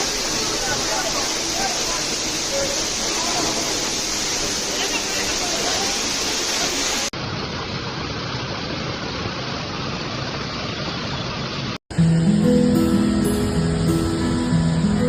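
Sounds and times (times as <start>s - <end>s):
music: 11.9s - 15.0s.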